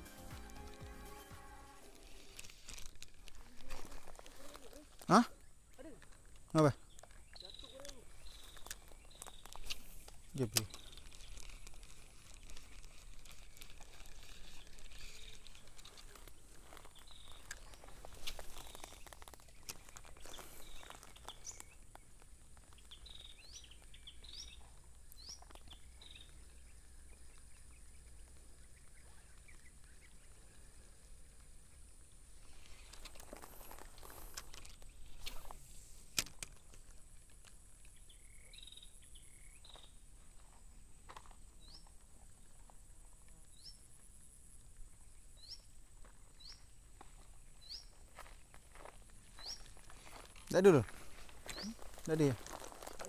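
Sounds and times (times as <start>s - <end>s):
faint background noise: 0.0s - 53.0s
bird chirping: 6.6s - 13.6s, 14.2s - 30.9s, 37.9s - 40.0s, 49.3s - 52.4s.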